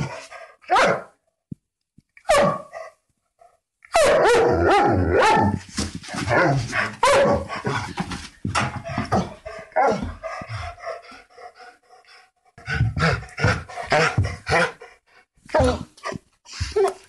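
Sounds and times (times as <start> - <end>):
dogs barking: 0.7 - 1.2, 2.3 - 2.9, 3.9 - 5.6, 6.3 - 7.8, 9.7 - 10.2.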